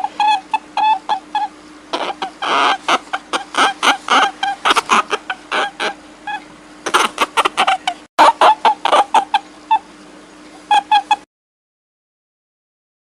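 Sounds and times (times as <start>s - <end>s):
short sharp animal calls: 0.0s - 10.0s
steady low hum: 0.0s - 11.2s.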